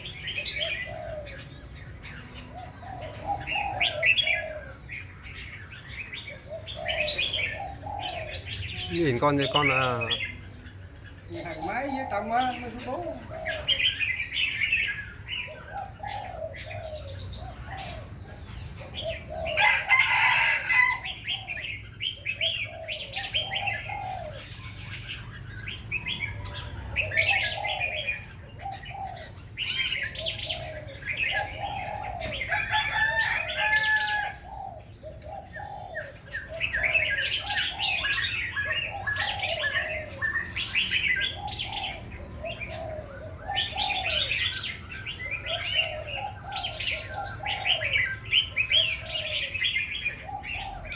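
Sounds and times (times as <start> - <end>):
birds singing: 0.0 - 50.9.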